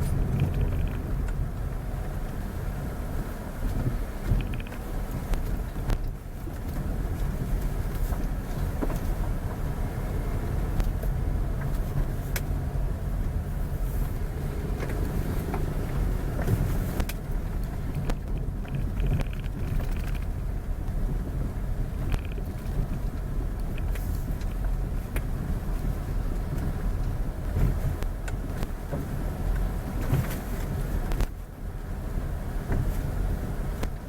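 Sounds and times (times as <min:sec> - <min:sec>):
short clicks and rattles: 0:00.0 - 0:01.4, 0:04.3 - 0:04.9, 0:17.9 - 0:20.4, 0:22.0 - 0:24.6
road vehicle rumbling: 0:00.0 - 0:34.0.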